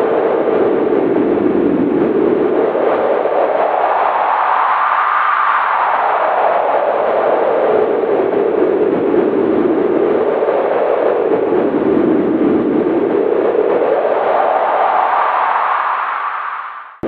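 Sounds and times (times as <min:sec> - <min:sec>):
wind howling: 0:00.0 - 0:17.0.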